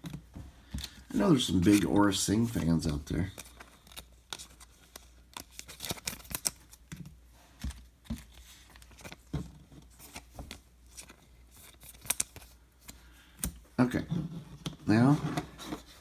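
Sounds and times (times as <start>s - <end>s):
cards and plastic clicking: 10.0s - 13.6s.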